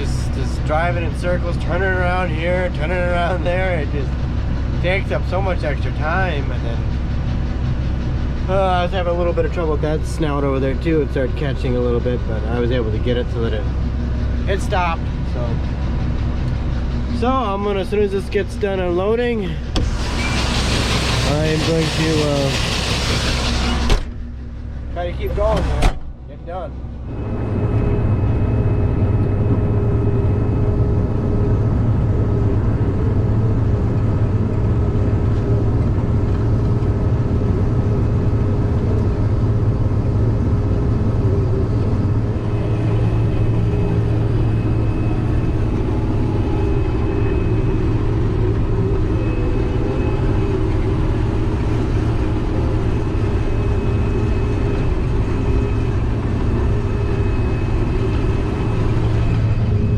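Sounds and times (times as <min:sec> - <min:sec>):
combine harvester engine hum: 0:00.0 - 0:59.9
high machinery whine: 0:00.0 - 0:59.9.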